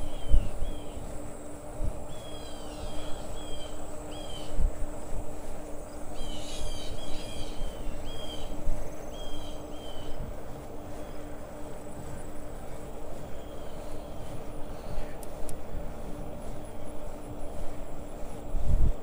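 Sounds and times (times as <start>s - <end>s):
high insect trill: 0.0s - 15.2s
birds chirping: 0.0s - 15.4s
wind and tyre rumble: 0.0s - 19.0s.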